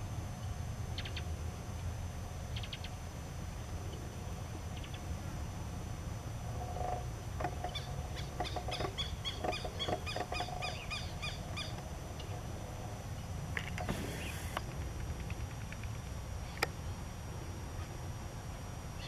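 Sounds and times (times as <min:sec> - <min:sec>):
brief hiss: 0:13.8 - 0:14.6.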